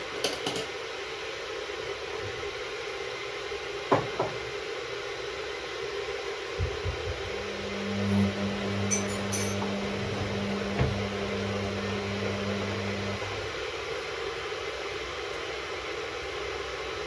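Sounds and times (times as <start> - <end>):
washing machine humming: 6.6 - 15.0
soft knocks: 8.2 - 11.5.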